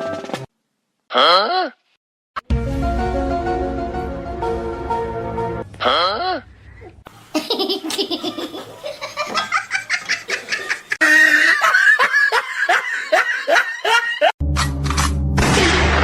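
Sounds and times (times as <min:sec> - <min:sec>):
person laughing: 0:07.3 - 0:14.3.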